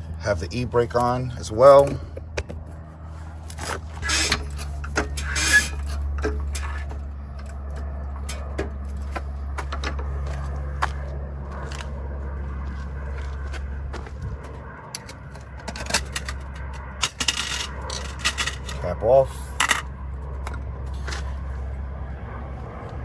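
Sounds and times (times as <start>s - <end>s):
steady low hum: 0.0s - 23.0s
metallic clicks and scrapes: 3.2s - 10.1s, 15.0s - 21.3s
car jack raising: 3.5s - 10.2s.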